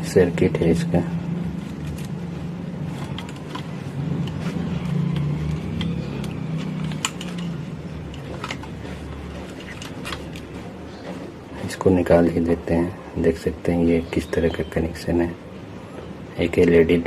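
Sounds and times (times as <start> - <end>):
low motor-like hum: 0.0 - 14.7
plastic parts clicking and tapping: 2.9 - 11.2.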